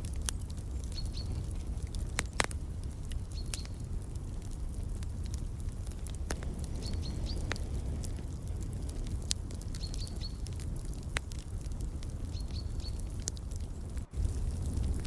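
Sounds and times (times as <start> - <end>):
wood fire crackling and popping: 0.0 - 15.0
bird chirping: 0.8 - 1.4.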